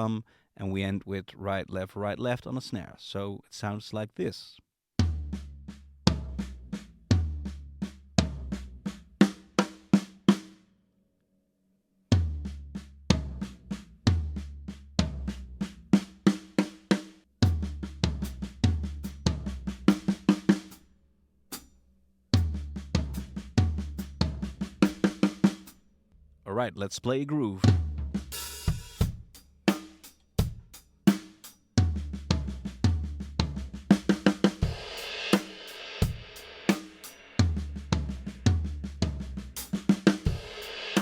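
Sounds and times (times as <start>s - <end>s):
drum kit playing a fill: 15.1s - 20.8s, 22.4s - 25.7s, 27.6s - 41.0s.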